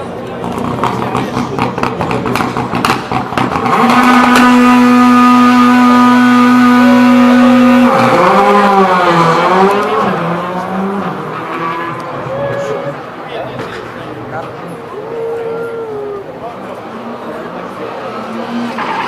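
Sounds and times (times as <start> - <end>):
rally car engine at high revs: 0.0 - 12.3, 16.8 - 19.0.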